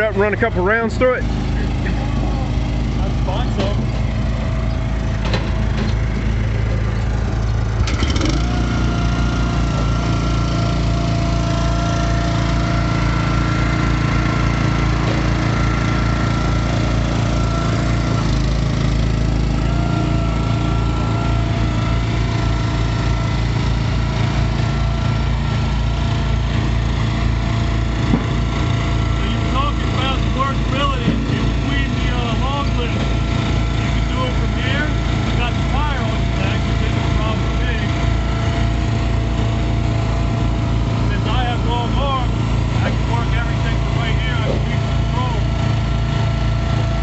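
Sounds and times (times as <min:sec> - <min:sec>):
small gas engine running: 0:00.0 - 0:47.0
thin steady whine: 0:11.2 - 0:47.0.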